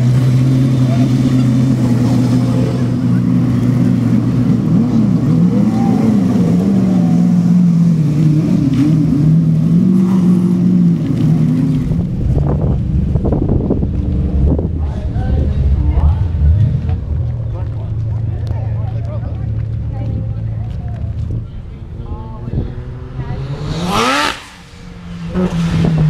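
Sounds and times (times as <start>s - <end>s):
car engines revving: 0.0s - 26.0s
wind buffeting microphone: 11.9s - 17.4s, 20.0s - 26.0s.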